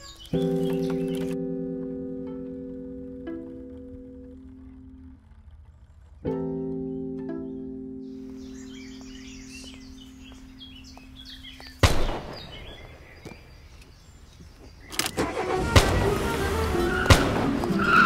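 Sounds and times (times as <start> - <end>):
small birds chirping: 0.0 - 2.7, 4.4 - 15.5
outdoor ambience: 0.0 - 18.0.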